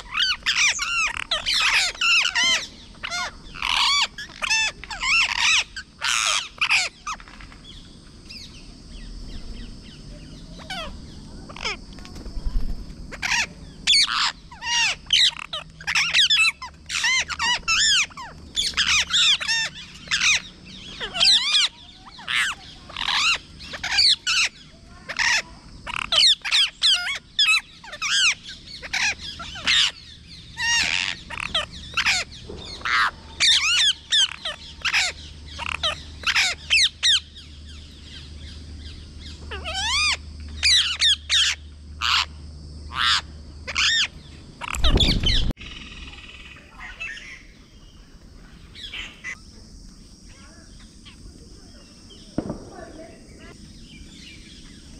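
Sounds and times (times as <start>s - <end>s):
parrot squawking: 30.6s - 37.2s.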